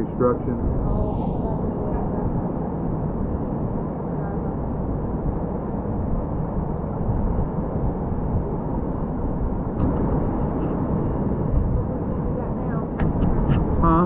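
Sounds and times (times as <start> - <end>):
steady low rumbling: 0.0 - 14.0.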